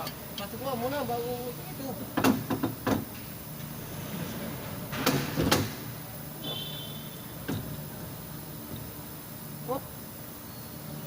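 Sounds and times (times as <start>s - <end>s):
steady low hum: 0.0s - 11.0s
sharp knocks and clunks: 2.2s - 3.1s, 4.9s - 5.8s, 7.4s - 7.8s.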